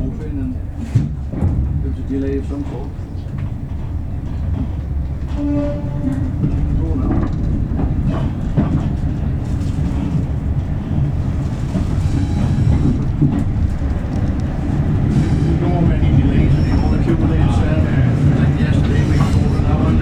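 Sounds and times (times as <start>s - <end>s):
train rumbling: 0.0s - 20.0s
clicking: 12.8s - 14.6s.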